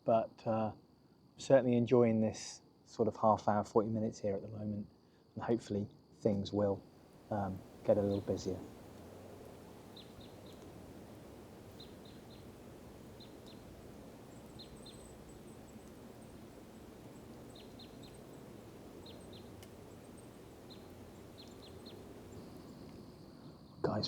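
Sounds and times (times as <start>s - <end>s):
outdoor background noise: 0.0s - 24.0s
small bird chipping: 7.1s - 23.2s.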